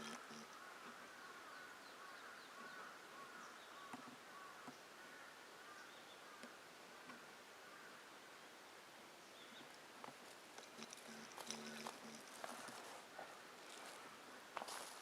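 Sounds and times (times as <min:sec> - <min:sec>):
thin high falling bird calls: 0:00.0 - 0:08.0
faint birdsong: 0:00.0 - 0:15.0.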